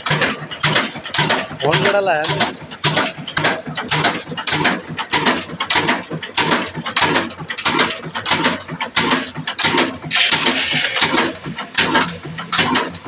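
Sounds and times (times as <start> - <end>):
diesel engine knocking: 0.0 - 13.0.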